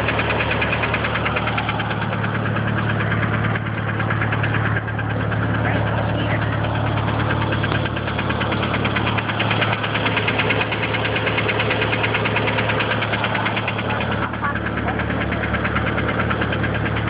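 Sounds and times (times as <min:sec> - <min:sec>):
car engine idling: 0:00.0 - 0:17.0
rapid even engine ticking knock: 0:00.0 - 0:17.0.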